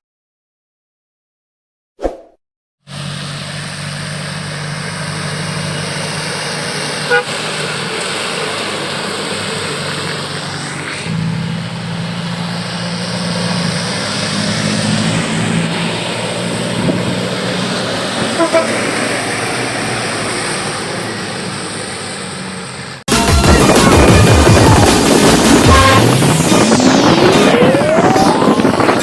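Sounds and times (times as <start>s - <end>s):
truck engines passing: 2.9s - 29.0s.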